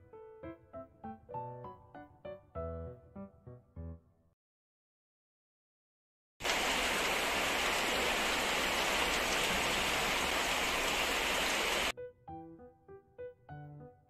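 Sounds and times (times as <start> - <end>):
piano music: 0.0 - 4.3, 11.9 - 14.0
heavy rain pouring: 6.4 - 11.9.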